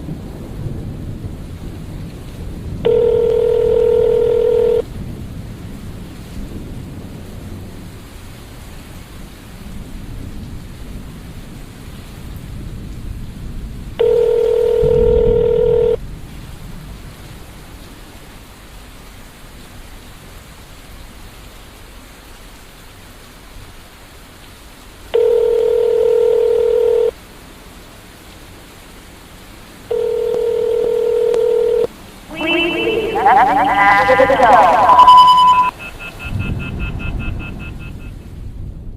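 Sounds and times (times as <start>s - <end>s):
low rumble of thunder: 0.0s - 3.1s, 4.8s - 14.0s, 36.2s - 38.9s
rain: 0.0s - 38.9s
telephone ringback tone: 2.9s - 4.8s, 14.0s - 16.0s, 25.2s - 27.1s, 29.9s - 38.0s.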